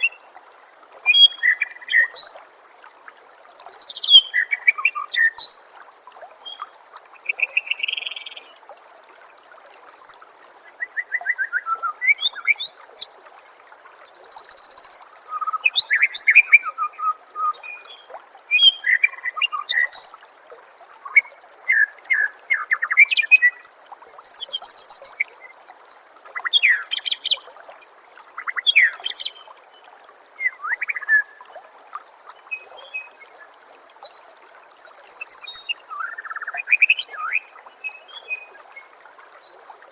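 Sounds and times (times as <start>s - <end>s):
water trickling: 0.0s - 39.9s
bird singing whistled phrases: 10.0s - 12.8s, 14.2s - 20.2s, 30.4s - 31.4s, 35.0s - 38.4s.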